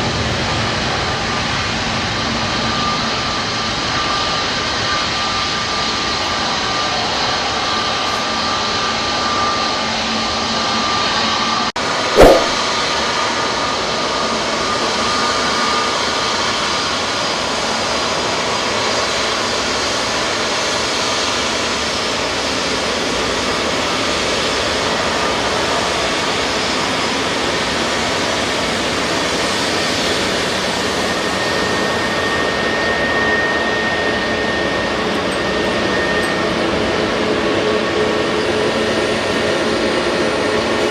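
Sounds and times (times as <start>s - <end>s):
short sharp click: 12.2s - 12.6s.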